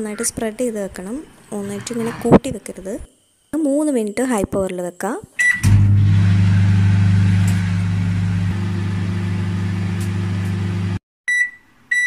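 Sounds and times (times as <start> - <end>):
microwave oven humming: 5.5 - 11.0.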